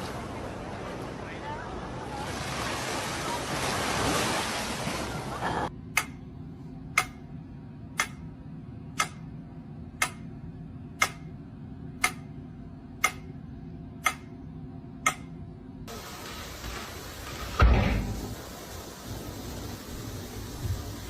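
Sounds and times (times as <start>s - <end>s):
clock ticking: 5.9s - 6.2s, 6.9s - 7.4s, 8.0s - 8.3s, 8.9s - 9.4s, 10.0s - 10.4s, 11.0s - 11.4s, 12.0s - 12.4s, 13.0s - 13.4s, 14.0s - 14.3s, 15.0s - 15.4s.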